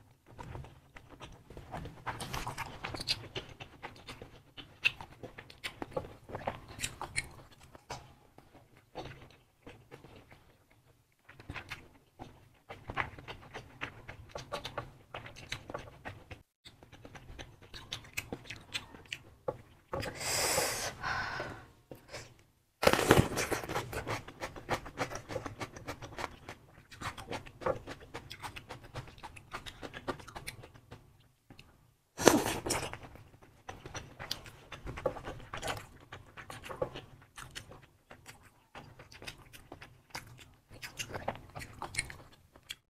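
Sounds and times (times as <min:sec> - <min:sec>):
wet chewing and smacking: 0:00.0 - 0:20.1, 0:23.1 - 0:42.9
breathy rushes: 0:20.1 - 0:22.3.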